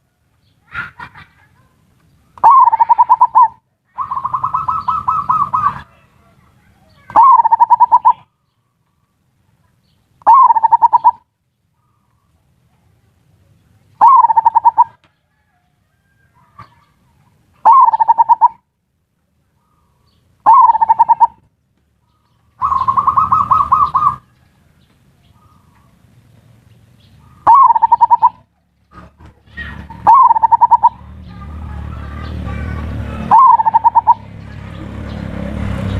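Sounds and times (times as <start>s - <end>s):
dove rolling call: 2.4s - 8.3s, 10.2s - 12.3s, 14.0s - 18.6s, 19.7s - 21.5s, 22.1s - 26.2s, 27.0s - 34.9s
zebra dove rattling coos: 2.4s - 8.3s, 10.2s - 11.3s, 14.0s - 15.7s, 17.6s - 18.6s, 20.4s - 21.5s, 22.6s - 24.5s, 27.2s - 34.5s.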